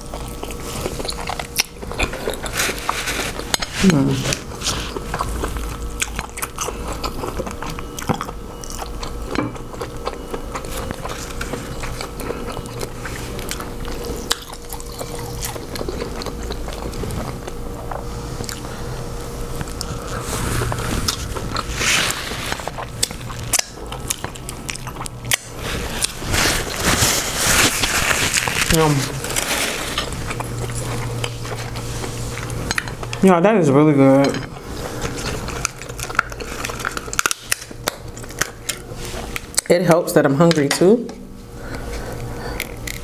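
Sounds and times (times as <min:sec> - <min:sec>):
person chewing and biting: 0:00.0 - 0:33.2, 0:34.5 - 0:39.7, 0:41.6 - 0:43.0
steady low hum: 0:00.0 - 0:43.0
crab shells crackling: 0:19.6 - 0:31.8.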